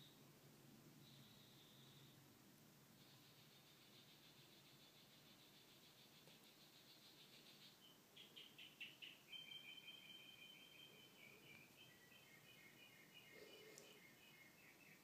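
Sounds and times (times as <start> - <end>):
faint birdsong trills and chirps: 0.0 - 15.0.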